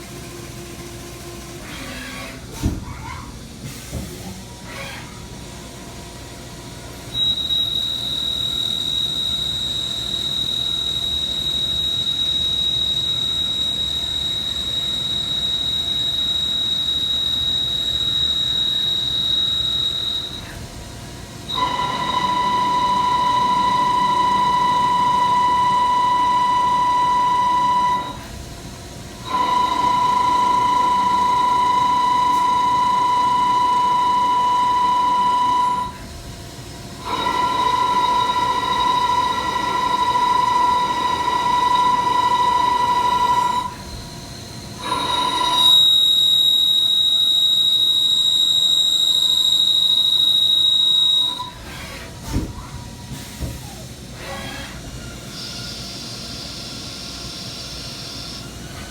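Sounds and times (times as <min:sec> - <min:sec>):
milling cutter squealing on metal: 0:44.8 - 0:52.0.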